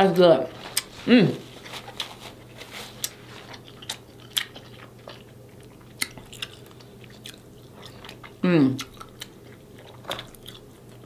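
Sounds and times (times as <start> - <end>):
chewing and mouth sounds: 2.9 - 11.0.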